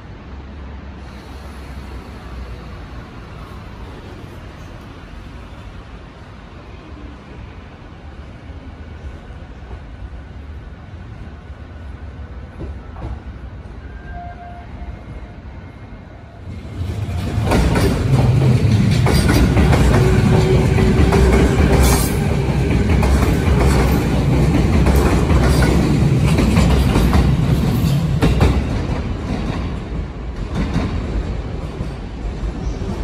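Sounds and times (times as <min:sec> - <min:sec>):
train wheels clattering over joints: 0:16.8 - 0:29.8.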